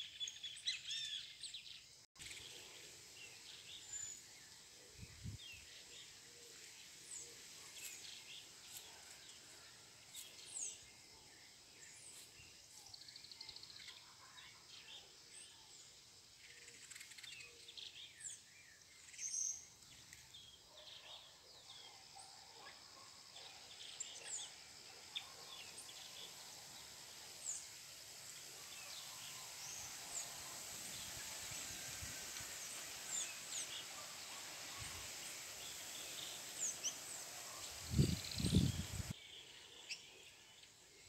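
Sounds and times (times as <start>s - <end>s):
small birds chirping: 0.0s - 9.6s, 10.2s - 40.8s
steady high hiss: 0.0s - 20.7s, 22.8s - 39.2s.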